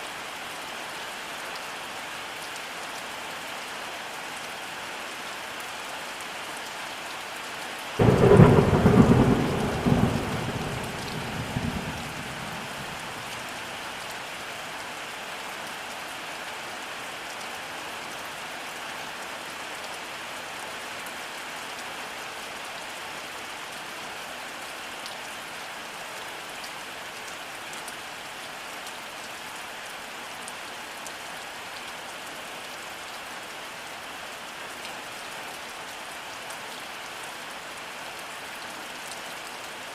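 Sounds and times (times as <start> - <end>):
steady rainfall: 0.0 - 39.9
thunderclap rumbling: 8.0 - 13.4.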